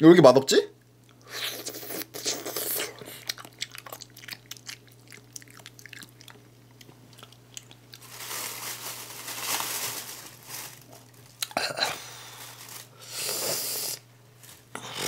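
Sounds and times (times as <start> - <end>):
wet chewing mouth sounds: 1.0 - 8.0.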